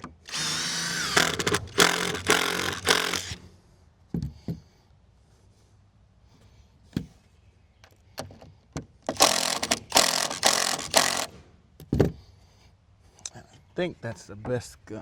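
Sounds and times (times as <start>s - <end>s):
power drill driving screws: 0.0s - 3.5s, 9.1s - 11.4s.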